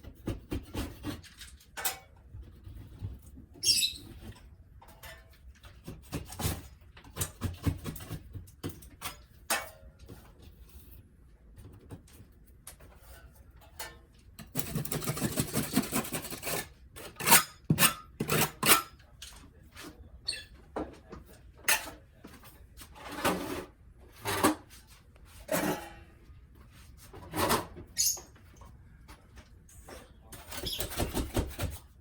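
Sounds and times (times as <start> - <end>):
rasping scraping: 14.5 - 19.0.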